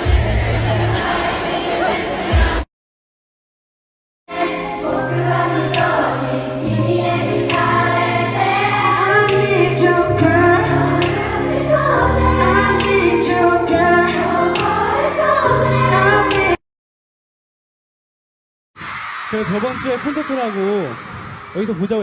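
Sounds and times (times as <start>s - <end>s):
choir-like group singing: 0.0s - 2.7s, 4.3s - 16.6s.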